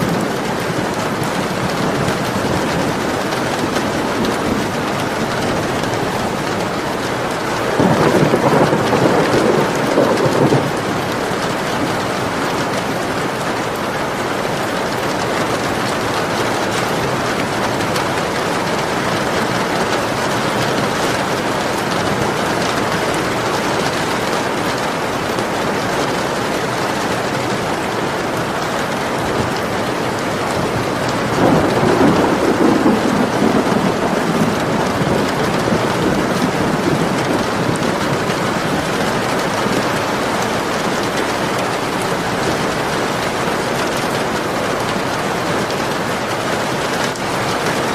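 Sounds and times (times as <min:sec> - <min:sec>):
thunder rolling: 0:00.0 - 0:13.0, 0:29.3 - 0:44.2
steady rain falling: 0:00.0 - 0:47.9.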